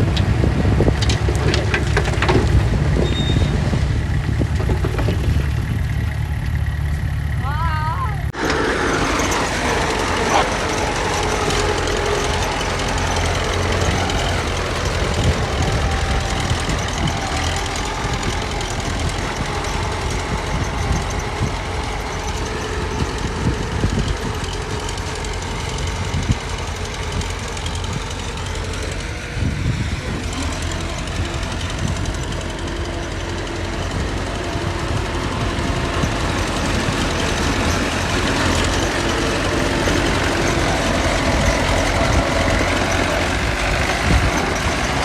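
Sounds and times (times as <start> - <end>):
diesel engine running: 0.0 - 45.0
short knocks and clanks: 0.1 - 5.8.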